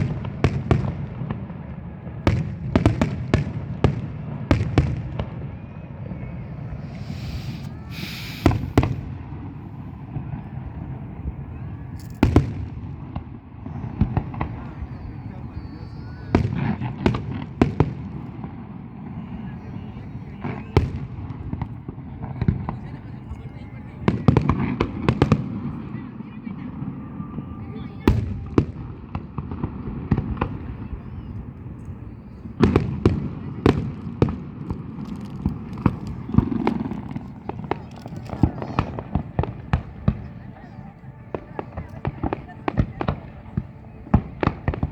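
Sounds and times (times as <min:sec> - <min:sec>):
firework bangs: 0:00.0 - 0:22.7, 0:28.0 - 0:44.9
firework hiss: 0:06.5 - 0:10.2.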